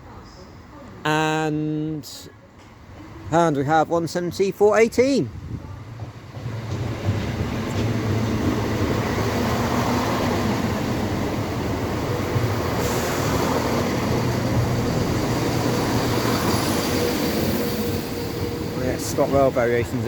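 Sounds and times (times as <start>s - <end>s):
diesel train engines running: 2.1s - 20.0s
hiss: 12.7s - 14.2s.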